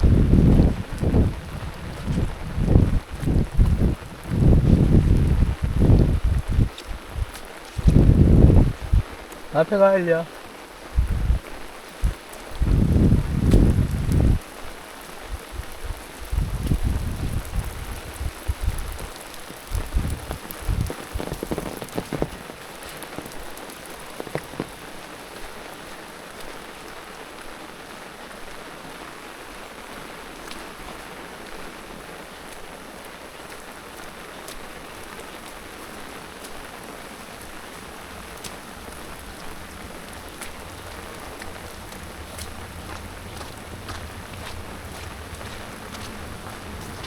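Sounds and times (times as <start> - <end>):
low thumps and rumbles: 0.0 - 9.2, 10.9 - 14.4, 15.3 - 23.4, 37.9 - 47.0
steady rain falling: 0.0 - 47.0.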